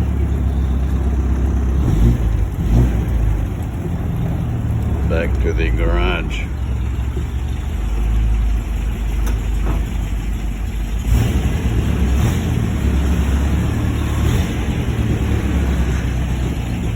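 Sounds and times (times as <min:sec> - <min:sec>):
car engine rumbling: 0:00.0 - 0:16.9.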